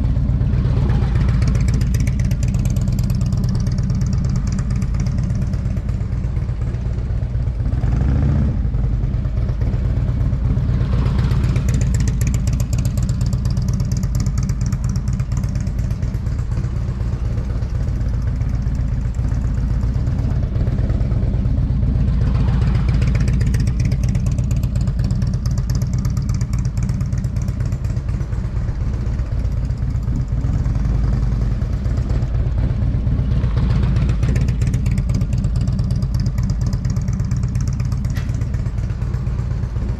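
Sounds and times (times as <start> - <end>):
motorcycle engine revving: 7.6 - 9.8.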